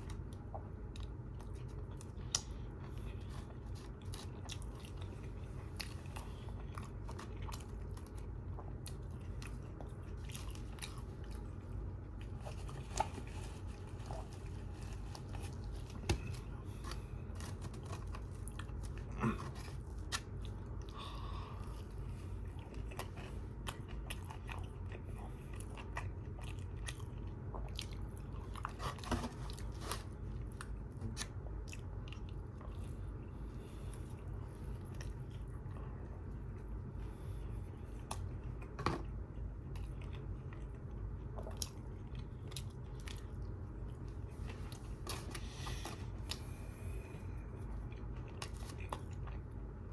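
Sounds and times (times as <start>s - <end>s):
close chewing and biting: 0.0s - 49.9s
steady low hum: 0.0s - 49.9s.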